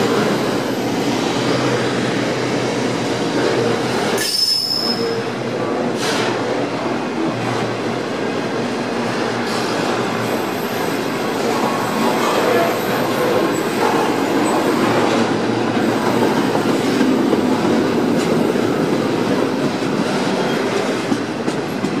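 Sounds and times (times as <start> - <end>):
high-pitched wheel squeal: 4.2 - 5.3.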